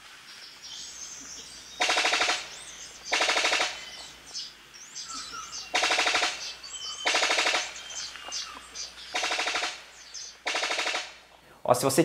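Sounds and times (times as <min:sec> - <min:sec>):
forest birds whistling: 0:00.3 - 0:11.5
bird rattling call: 0:01.7 - 0:04.4, 0:05.0 - 0:11.3.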